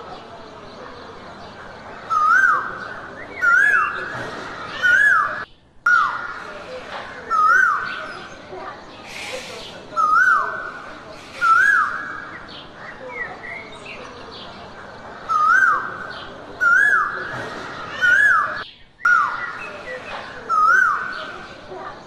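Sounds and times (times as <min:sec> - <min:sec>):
bird whistled call: 0:10.0 - 0:10.7, 0:11.4 - 0:12.4, 0:16.6 - 0:17.2.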